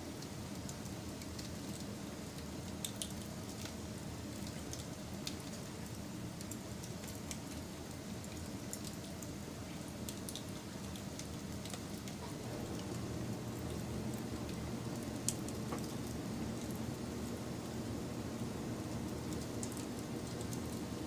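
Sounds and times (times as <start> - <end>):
wood fire crackling and popping: 4.4 - 9.3, 10.1 - 21.0.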